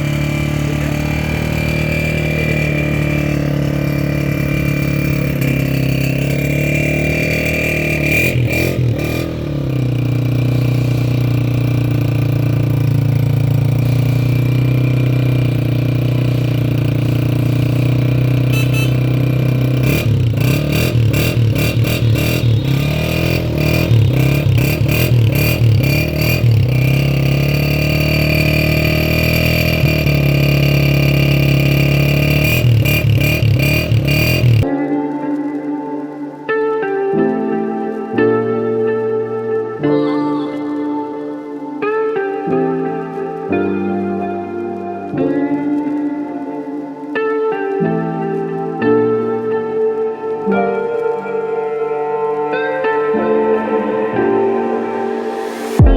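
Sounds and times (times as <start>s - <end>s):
motorcycle engine idling and revving: 0.0s - 34.7s, 55.1s - 55.9s.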